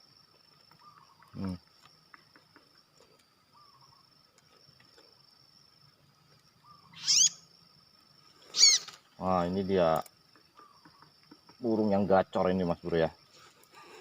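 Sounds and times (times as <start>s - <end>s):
high cricket-like drone: 0.0s - 14.0s
sharp bird call: 6.8s - 7.4s, 8.5s - 8.9s.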